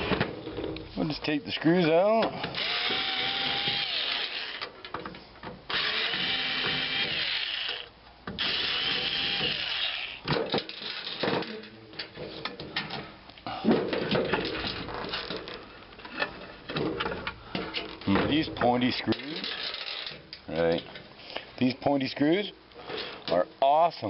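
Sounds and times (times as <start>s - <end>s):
power drill backing out screws: 2.4s - 4.7s, 5.7s - 10.1s
loose screws and metal clatter: 19.1s - 21.0s.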